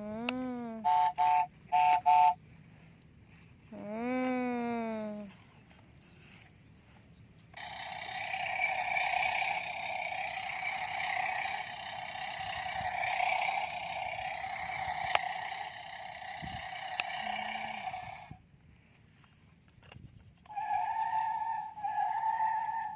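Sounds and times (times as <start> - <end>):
toy vehicle engine sound: 0.0 - 2.4, 7.6 - 18.4, 20.4 - 22.9.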